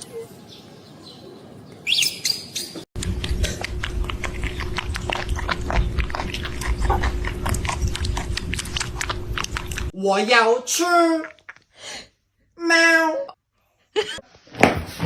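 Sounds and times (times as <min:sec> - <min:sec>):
animal chewing and crunching: 0:03.0 - 0:09.9
steady hum: 0:03.0 - 0:09.9.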